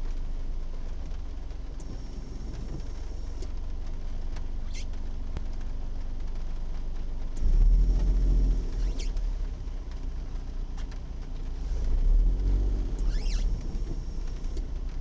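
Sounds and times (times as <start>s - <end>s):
car engine accelerating: 1.0s - 5.0s, 7.2s - 15.0s.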